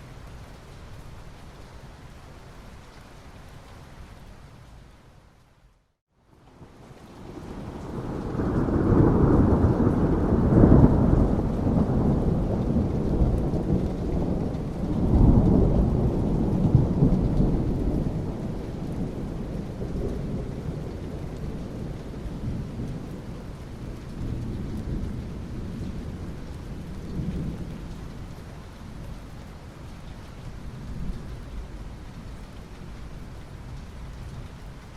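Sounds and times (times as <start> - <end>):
steady rain: 0.0 - 34.9
thunder rumbling: 7.2 - 28.2.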